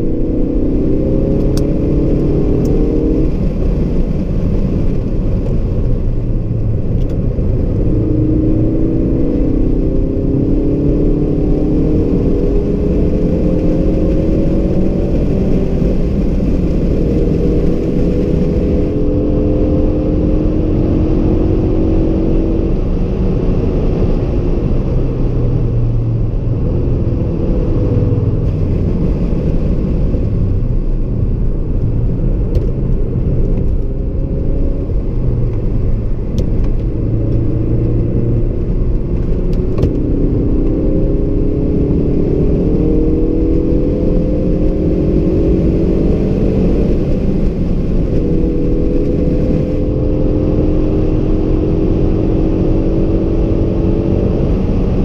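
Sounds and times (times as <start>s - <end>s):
car engine accelerating: 0.0s - 55.0s
low road rumble: 0.0s - 55.0s.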